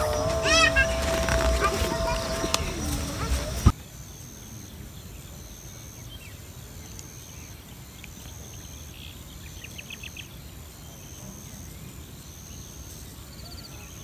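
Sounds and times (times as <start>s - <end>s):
insects buzzing in pulses: 0.0s - 4.6s.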